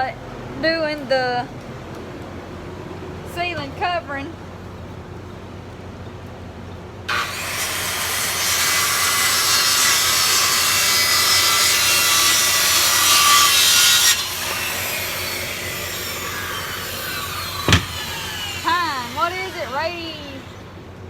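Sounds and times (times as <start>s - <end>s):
quieter background noise: 0.0s - 7.1s
saw cutting through plywood: 7.1s - 20.7s.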